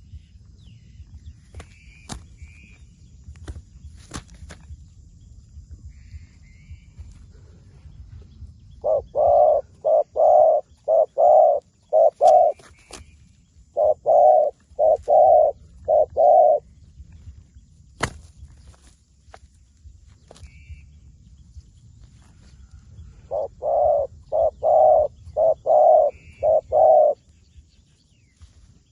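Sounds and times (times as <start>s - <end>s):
dove cooing: 8.8s - 13.0s, 13.7s - 16.7s, 22.9s - 27.2s.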